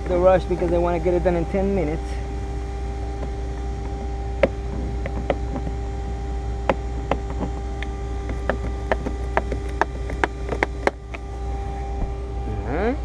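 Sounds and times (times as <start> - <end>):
steady machine hum: 0.0 - 13.0
light clicks and taps on car trim: 6.6 - 11.2.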